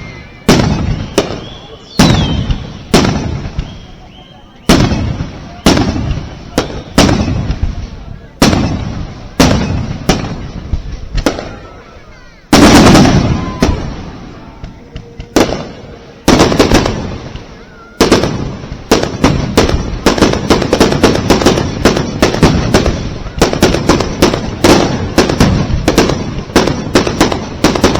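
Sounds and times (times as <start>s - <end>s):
fireworks bangs: 0.0s - 27.9s.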